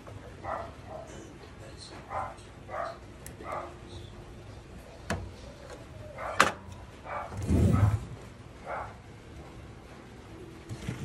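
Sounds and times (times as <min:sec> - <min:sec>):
dog barking: 0:00.4 - 0:01.2, 0:02.1 - 0:03.8, 0:06.1 - 0:08.0, 0:08.6 - 0:09.0.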